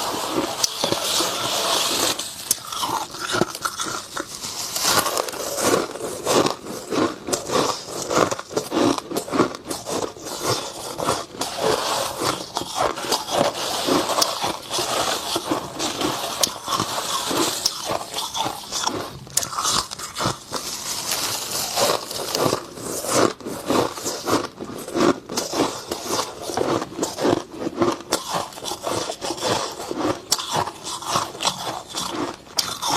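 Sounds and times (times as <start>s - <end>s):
scraping sounds: 0.0s - 6.8s
crunching and chewing frost: 0.0s - 32.9s.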